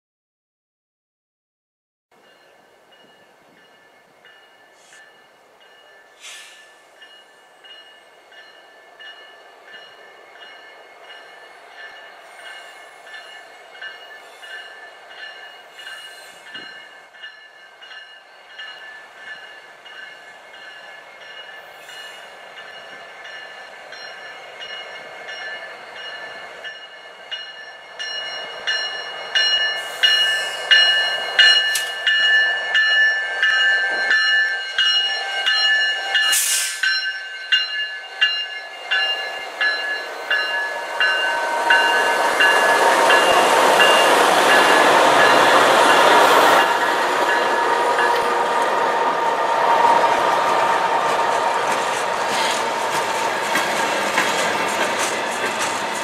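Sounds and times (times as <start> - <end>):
bell ringing: 22.5 - 48.4.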